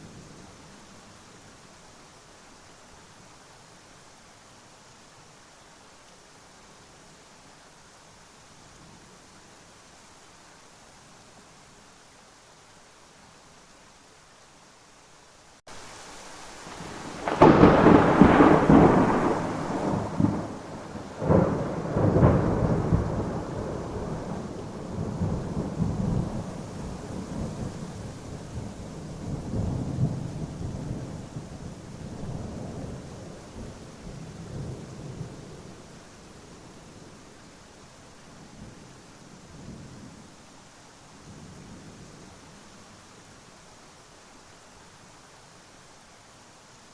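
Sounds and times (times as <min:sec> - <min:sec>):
steady rain: 0:00.0 - 0:46.9
thunder rumbling: 0:16.7 - 0:35.8.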